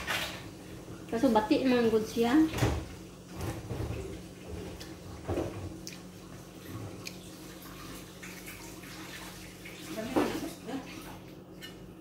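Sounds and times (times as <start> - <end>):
soft chewing: 5.8 - 7.5.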